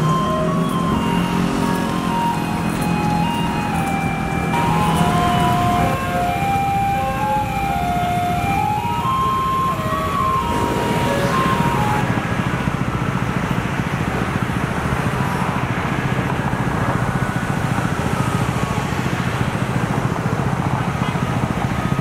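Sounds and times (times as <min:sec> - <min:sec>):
diesel engine idling: 0:00.0 - 0:16.8.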